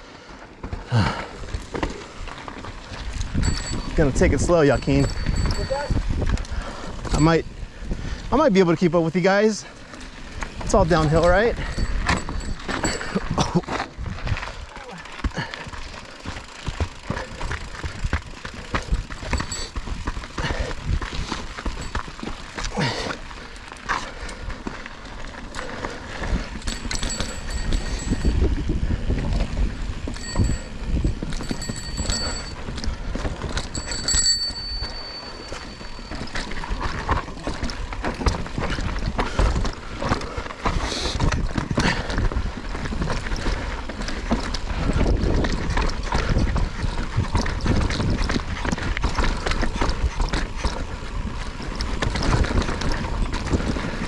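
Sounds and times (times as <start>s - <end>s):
bike tyres on dirt: 0.0s - 54.0s
bike rattling over bumps: 0.1s - 54.0s
wind rumble on microphone: 2.8s - 8.3s, 26.1s - 54.0s.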